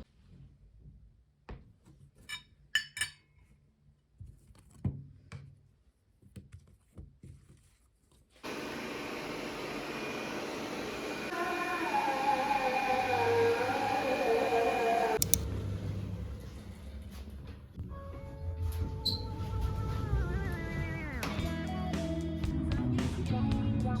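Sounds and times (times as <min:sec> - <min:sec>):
glass clinking: 0:02.3 - 0:03.2.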